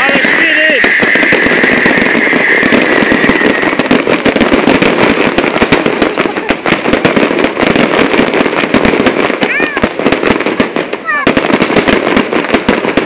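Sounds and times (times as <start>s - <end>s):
high whistling tone: 0.0s - 3.8s
fireworks crackling bangs: 0.0s - 13.0s.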